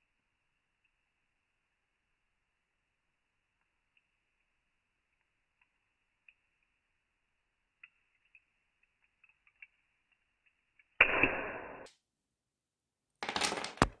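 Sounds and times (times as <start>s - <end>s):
loud plastic crack: 13.2s - 14.0s.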